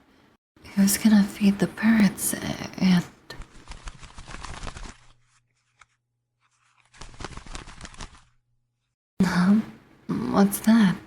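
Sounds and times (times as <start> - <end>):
crinkling rustle: 3.4 - 9.0.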